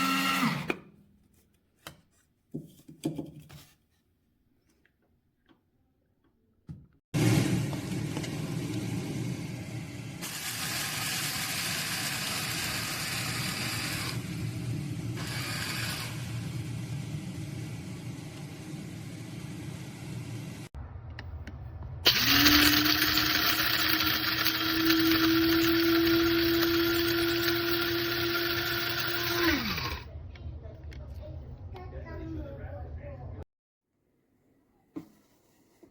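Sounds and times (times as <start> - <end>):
coffee grinder motor humming: 0.0 - 0.7, 7.2 - 14.5, 15.1 - 19.5, 22.1 - 30.0.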